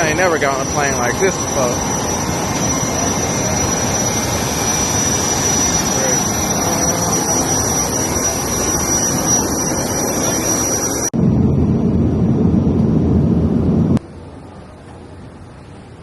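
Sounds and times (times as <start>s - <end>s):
turbine engines whining: 0.0s - 14.0s
deep low rumble: 11.2s - 14.0s.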